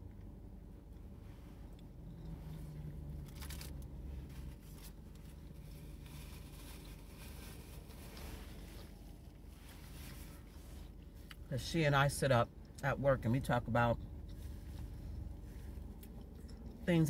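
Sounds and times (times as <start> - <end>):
steady low hum: 0.0 - 17.0
sandwich being chewed: 1.7 - 10.6
paper wrapper crinkling: 3.2 - 8.8.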